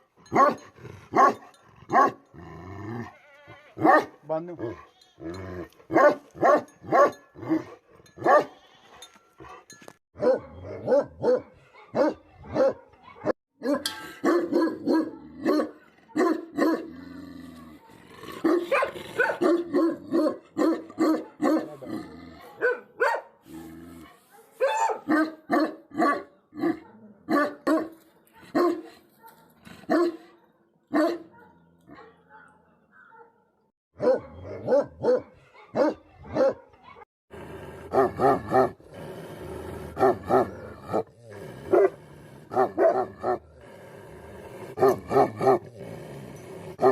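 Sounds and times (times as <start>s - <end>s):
dog barking deeply: 3.8s - 4.8s, 5.9s - 7.7s, 10.2s - 12.9s, 13.6s - 17.0s, 17.8s - 23.3s, 34.0s - 36.8s, 37.7s - 45.8s.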